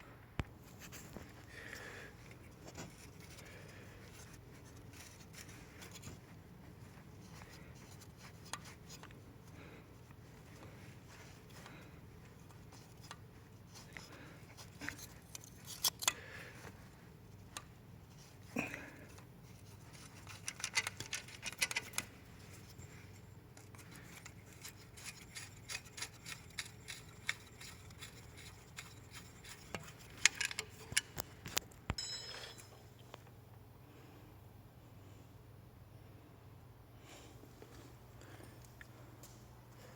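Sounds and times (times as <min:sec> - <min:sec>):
faint steady hum: 0:00.0 - 0:39.9
scraping and rubbing: 0:19.5 - 0:31.2.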